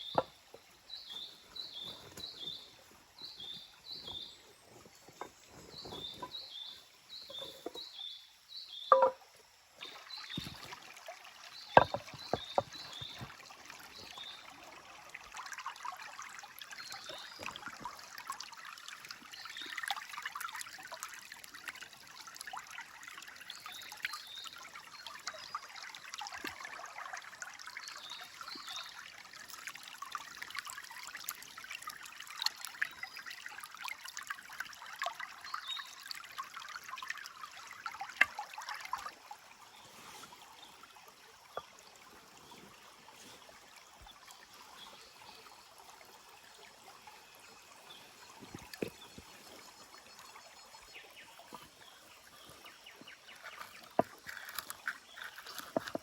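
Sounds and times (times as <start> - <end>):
stream water trickling: 0.0 - 56.0
sharp knocks: 8.9 - 9.2.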